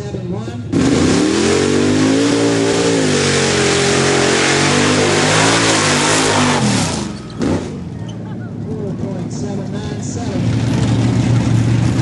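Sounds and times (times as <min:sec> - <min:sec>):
truck engine at full throttle: 0:00.0 - 0:12.0
short engine rev: 0:00.7 - 0:08.0.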